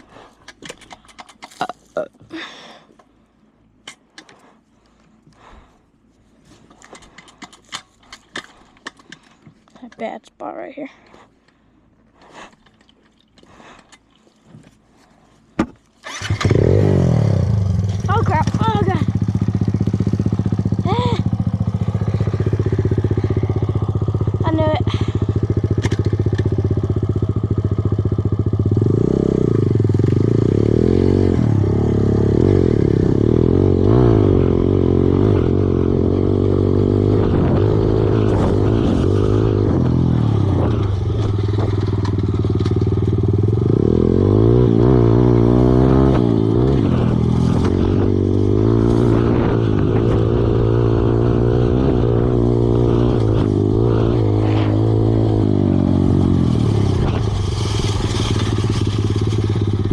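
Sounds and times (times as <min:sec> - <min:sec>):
dirt bike engine revving: 0:16.0 - 0:59.9.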